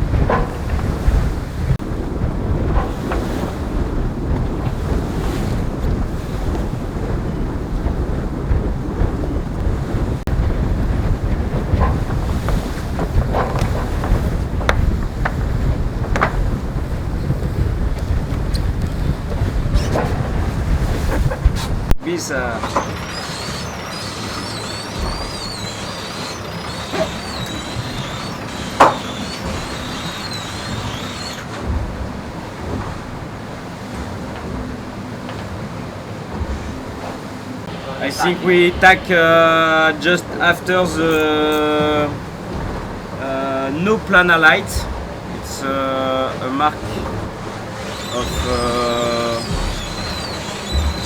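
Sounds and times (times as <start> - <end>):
water rushing past hull: 0.0 - 51.0
wind buffeting microphone: 0.0 - 51.0
short clicks or creaks: 21.9 - 31.6, 47.7 - 51.0
wavering high-pitched whine: 22.1 - 31.6, 37.7 - 41.7, 46.7 - 51.0.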